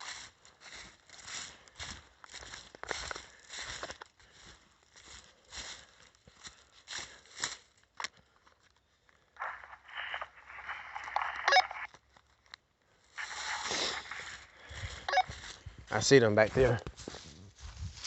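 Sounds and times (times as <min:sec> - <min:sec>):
footsteps on dry leaves: 0:00.0 - 0:08.1, 0:13.0 - 0:18.0.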